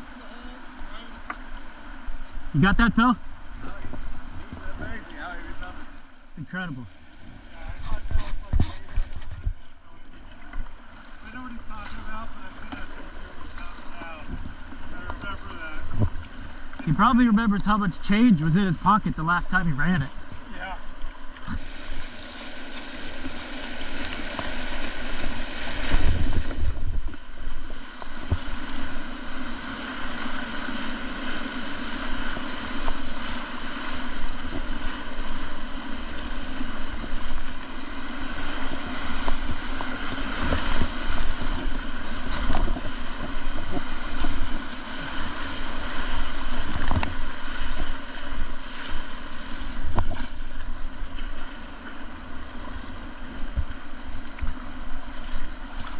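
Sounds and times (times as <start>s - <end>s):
whitewater rushing: 11.0s - 51.4s.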